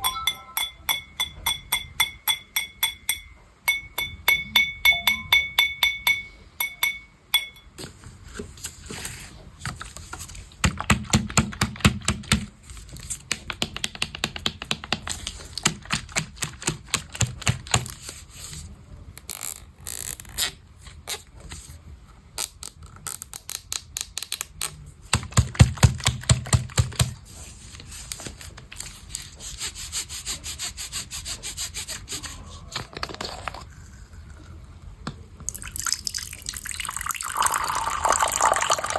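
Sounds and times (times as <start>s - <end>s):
ringing glassy taps: 0.0s - 7.7s.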